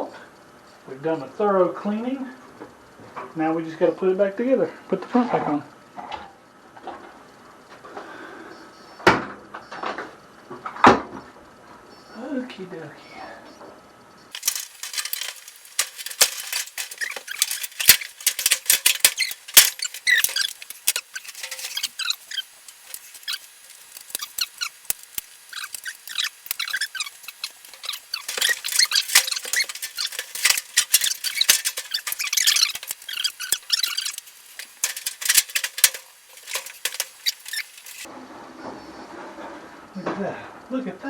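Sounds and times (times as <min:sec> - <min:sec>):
sheet metal clicking and rattling: 0:14.3 - 0:38.1
short squeaks: 0:14.4 - 0:38.1.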